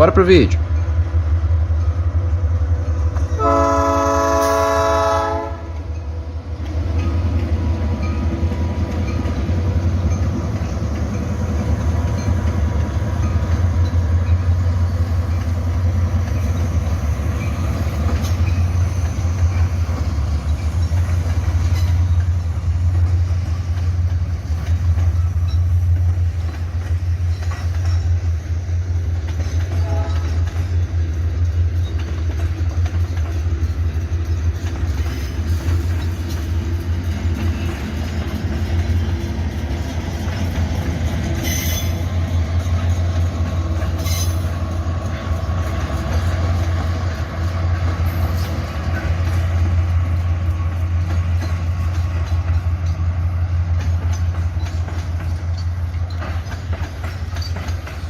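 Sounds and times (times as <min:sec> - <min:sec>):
diesel locomotive rumble: 0:00.0 - 0:58.0
train air horn: 0:03.4 - 0:05.8, 0:29.7 - 0:30.4.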